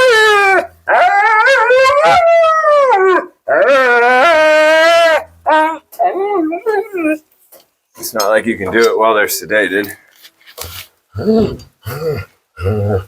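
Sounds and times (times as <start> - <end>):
dog howling: 0.0 - 7.2.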